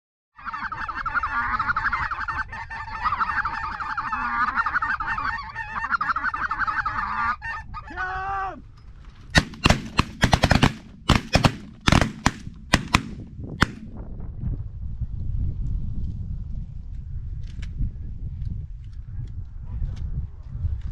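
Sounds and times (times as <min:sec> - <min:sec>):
geese honking: 0:00.4 - 0:08.0
shotgun shots: 0:09.4 - 0:14.0.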